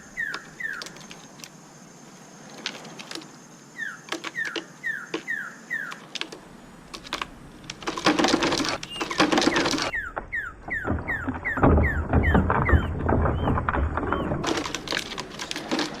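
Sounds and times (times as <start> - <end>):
descending whistled bird calls: 0.0 - 1.1, 3.7 - 6.0, 8.8 - 14.4
clicking and rustling handling noise: 0.2 - 1.6, 2.4 - 3.4, 4.0 - 16.0.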